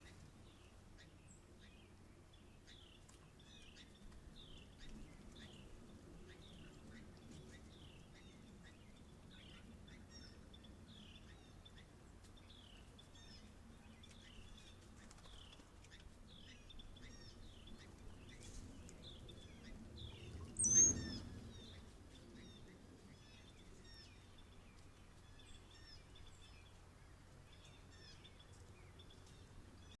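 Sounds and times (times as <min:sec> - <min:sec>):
scattered bird calls: 0:00.0 - 0:30.0.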